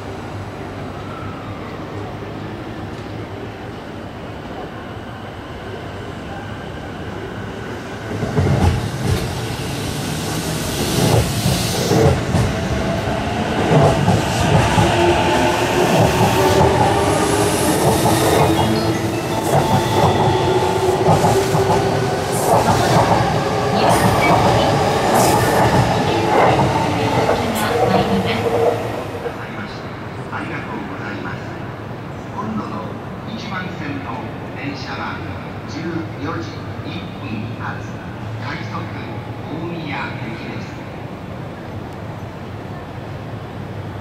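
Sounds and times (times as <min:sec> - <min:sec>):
train wheels clattering on rails: 0:10.9 - 0:28.7.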